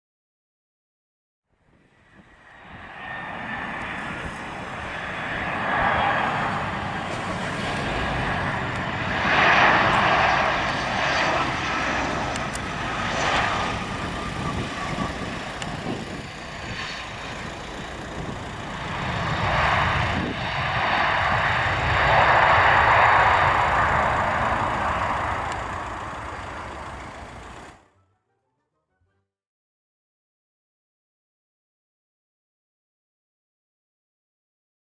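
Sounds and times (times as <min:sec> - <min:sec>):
jet engines rushing with whine: 0:01.6 - 0:27.9.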